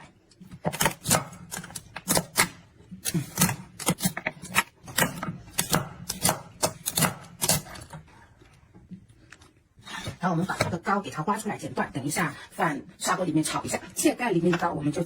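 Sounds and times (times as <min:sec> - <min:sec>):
knife chopping crab on board: 0:00.6 - 0:07.9.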